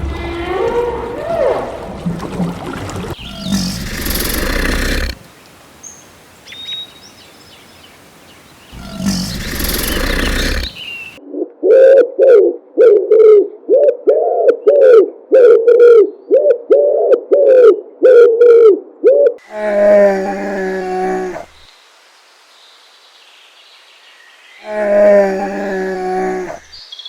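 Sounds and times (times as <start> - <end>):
short rising falling animal calls: 3.2 - 5.2, 8.7 - 11.2
loud rough animal call: 3.2 - 5.3, 8.7 - 11.2, 24.6 - 26.7.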